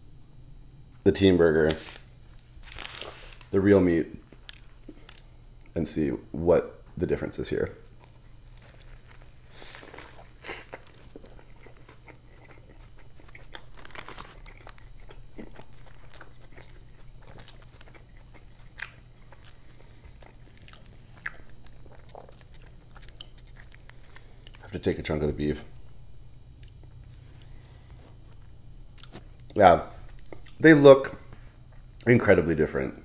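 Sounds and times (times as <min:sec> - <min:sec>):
person chewing a burger: 0:07.8 - 0:24.8, 0:25.7 - 0:32.1.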